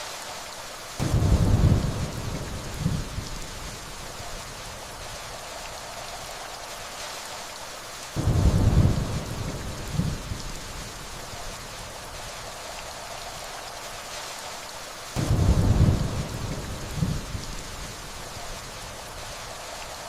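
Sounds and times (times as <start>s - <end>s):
steady rainfall: 0.0s - 20.0s
thunder rolling: 1.0s - 3.6s, 8.2s - 13.1s, 15.2s - 18.0s.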